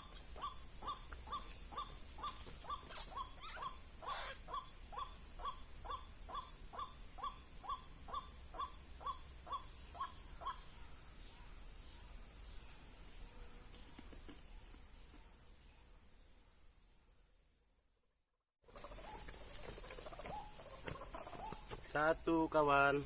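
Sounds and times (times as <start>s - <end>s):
waterhen calling: 0.0s - 10.6s.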